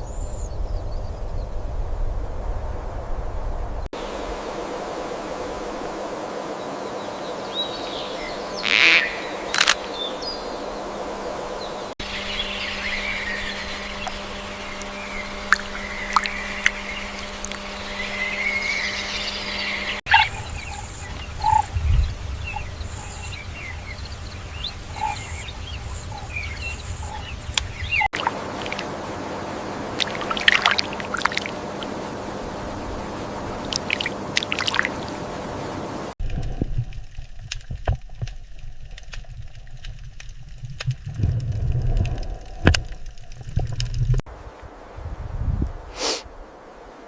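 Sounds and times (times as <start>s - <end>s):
sharp loud bird calls: 7.6s - 10.8s, 12.0s - 36.1s
birds chirping and calling: 11.6s - 36.1s.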